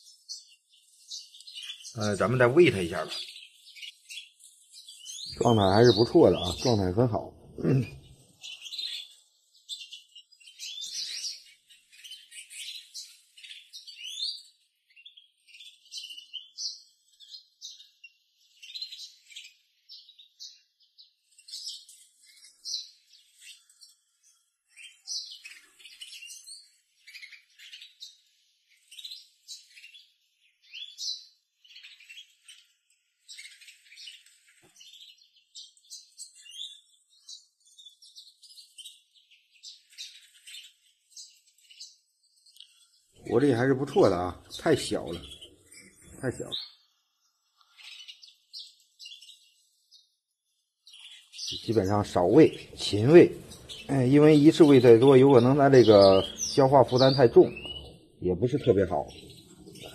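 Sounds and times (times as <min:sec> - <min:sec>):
bird chick begging chirps: 0:42.6 - 0:46.7, 0:50.9 - 0:59.9.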